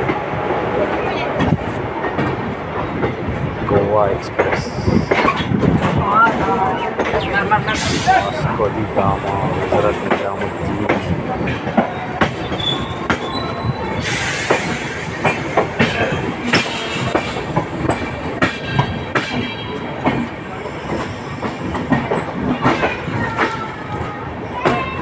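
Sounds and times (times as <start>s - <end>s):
train wheels clacking on rails: 0.0s - 25.0s
faint wheel squeal: 12.3s - 17.1s.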